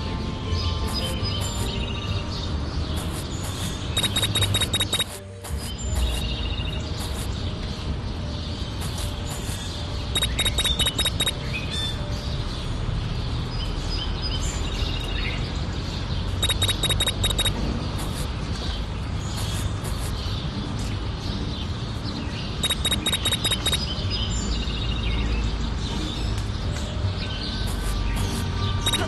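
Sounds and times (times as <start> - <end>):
high bird-like chirps: 0.8 - 12.4, 16.3 - 20.4, 22.5 - 25.1, 27.2 - 29.0.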